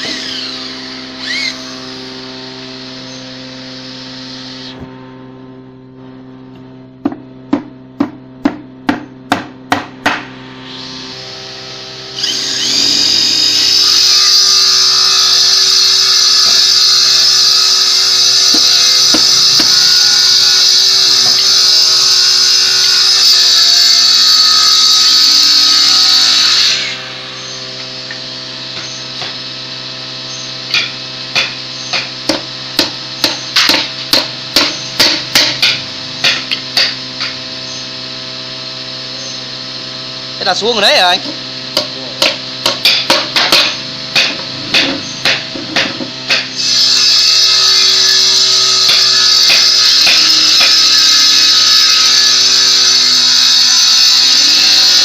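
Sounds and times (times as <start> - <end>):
power tool whining: 0.0 - 5.1, 10.4 - 55.0
hammer blows: 41.7 - 48.2.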